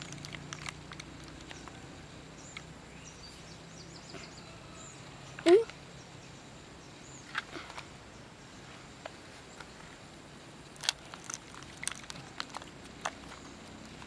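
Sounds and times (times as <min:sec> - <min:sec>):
small hard objects clicking: 0:00.0 - 0:01.8, 0:10.7 - 0:14.0.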